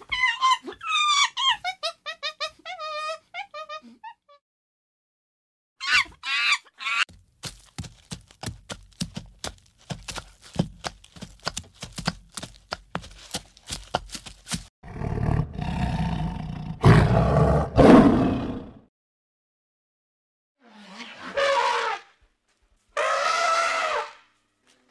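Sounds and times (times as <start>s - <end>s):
tiger roaring and growling: 14.8s - 18.8s.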